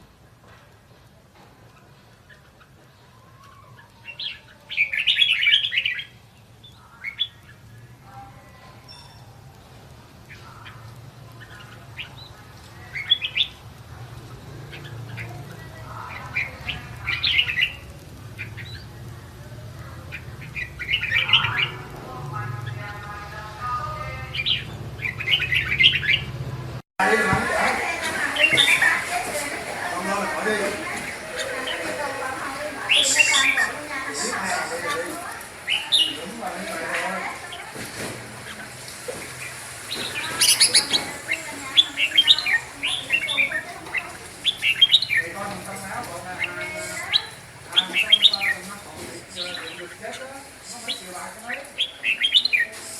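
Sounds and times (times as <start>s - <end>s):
bird chirping phrases: 20.0s - 26.3s, 27.0s - 37.7s, 38.3s - 52.9s.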